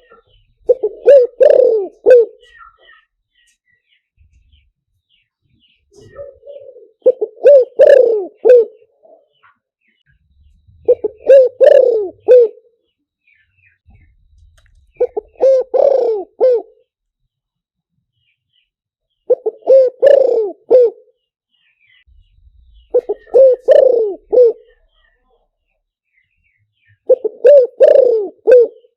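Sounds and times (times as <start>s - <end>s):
dove cooing: 0.0s - 3.1s, 5.9s - 9.6s, 10.7s - 12.8s, 13.9s - 16.9s, 19.3s - 21.2s, 22.7s - 25.2s, 26.9s - 28.9s
small birds chirping: 0.0s - 28.9s.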